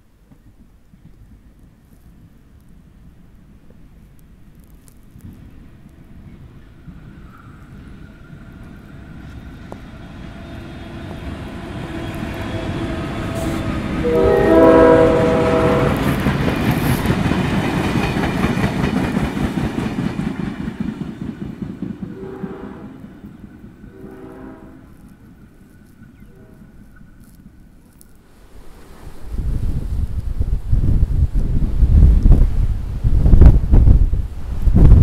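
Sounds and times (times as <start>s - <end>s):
train clattering over rails: 5.4s - 22.3s
locomotive horn: 11.6s - 16.3s, 22.1s - 23.1s, 23.8s - 25.1s, 26.2s - 26.8s.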